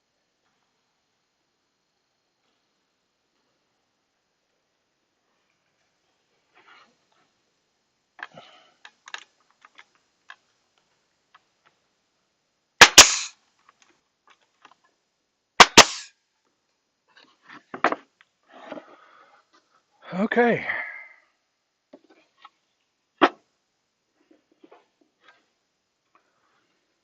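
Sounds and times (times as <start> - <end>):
sharp double cracks: 12.8 - 13.4, 15.6 - 16.1.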